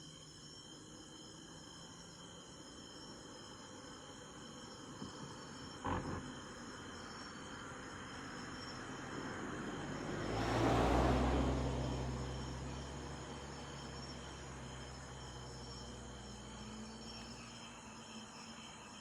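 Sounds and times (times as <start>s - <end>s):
crickets and insects chirping: 0.0s - 19.0s
car passing: 5.8s - 17.9s.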